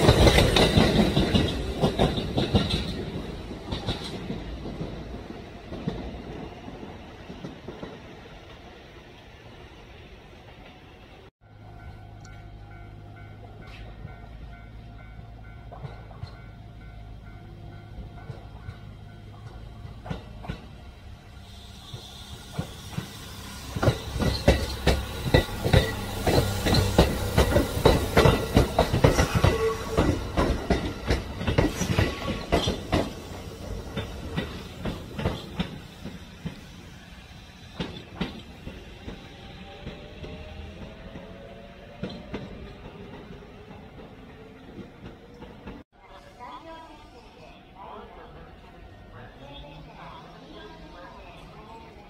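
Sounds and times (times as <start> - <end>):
train wheels clicking: 0.0 - 8.6, 15.5 - 45.8.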